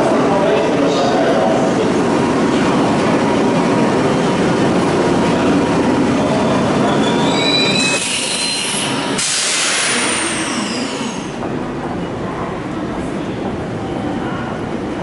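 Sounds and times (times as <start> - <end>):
high-pitched brake squeal: 6.4 - 11.4.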